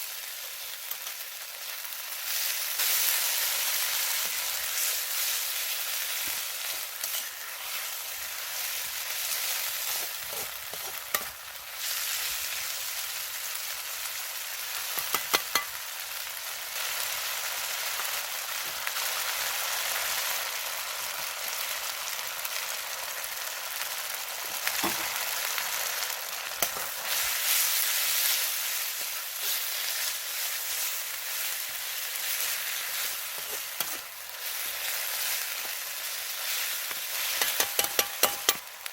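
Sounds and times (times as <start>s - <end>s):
food sizzling in a wok: 0.0s - 38.9s.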